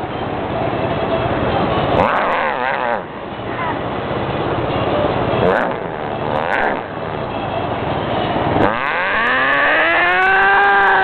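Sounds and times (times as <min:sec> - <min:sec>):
scooter riding noise: 0:00.0 - 0:11.0.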